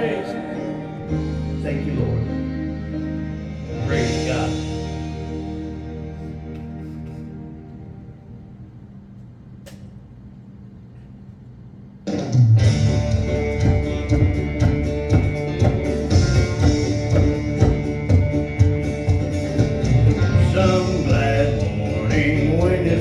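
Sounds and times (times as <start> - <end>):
upbeat country band: 0.0 - 6.1, 12.2 - 23.0
soft sustained chords: 0.0 - 9.2.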